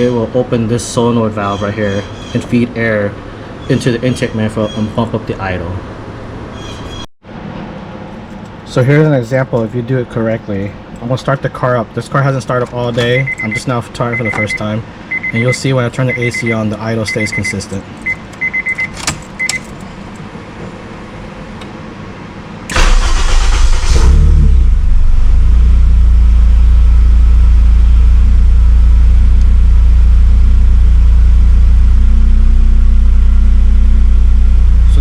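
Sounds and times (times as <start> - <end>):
car engine starting and idling: 8.2 - 35.0
short electronic beeps: 13.1 - 19.6.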